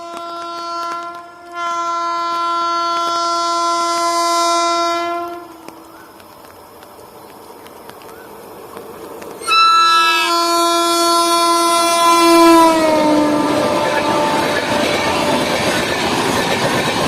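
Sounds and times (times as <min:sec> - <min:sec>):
wheels clicking on rails: 0:00.0 - 0:04.0, 0:04.8 - 0:10.7, 0:12.1 - 0:17.0
locomotive air horn: 0:00.0 - 0:05.9, 0:09.4 - 0:15.9
train rumbling past: 0:00.0 - 0:17.0.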